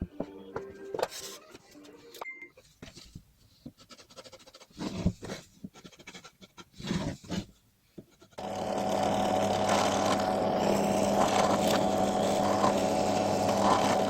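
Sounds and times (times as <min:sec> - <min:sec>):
scraping: 0:03.8 - 0:14.0.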